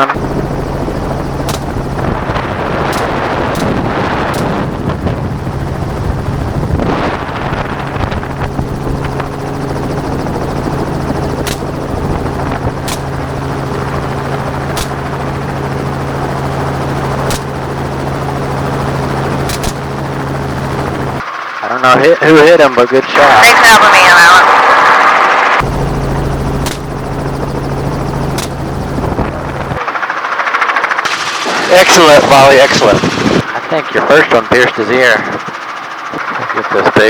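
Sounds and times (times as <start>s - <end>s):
helicopter droning: 0.0s - 37.0s
gunshots: 1.4s - 4.9s, 11.4s - 13.9s, 14.7s - 15.2s, 17.2s - 17.6s, 19.5s - 19.9s, 26.6s - 27.0s.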